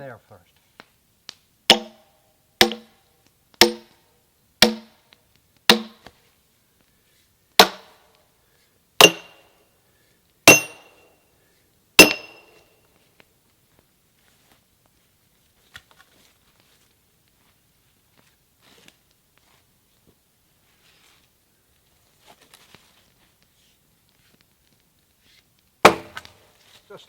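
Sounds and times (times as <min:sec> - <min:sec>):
sledgehammer striking steel wedge: 0:01.7 - 0:03.0, 0:03.6 - 0:04.0, 0:04.6 - 0:05.0, 0:05.7 - 0:06.1, 0:07.6 - 0:08.0, 0:09.0 - 0:09.5, 0:10.5 - 0:11.0, 0:12.0 - 0:12.6, 0:25.8 - 0:26.4.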